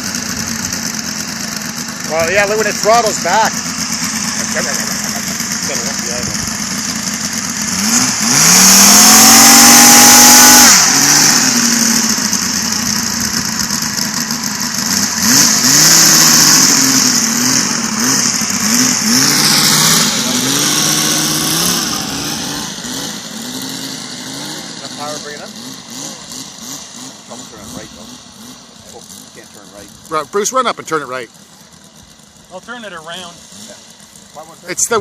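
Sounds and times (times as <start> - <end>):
model radial engine revving: 0.0 - 35.0.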